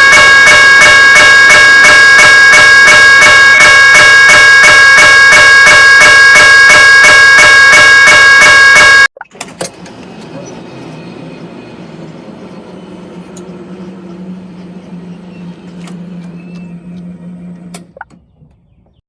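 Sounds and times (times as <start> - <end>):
traffic noise: 9.2 - 17.2
vehicle engine idling: 9.8 - 16.6.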